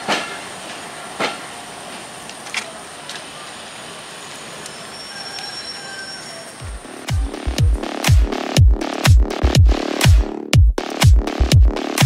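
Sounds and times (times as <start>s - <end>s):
wheels clacking over rail joints: 0.0s - 6.6s
train coaches rumbling past: 0.0s - 7.0s.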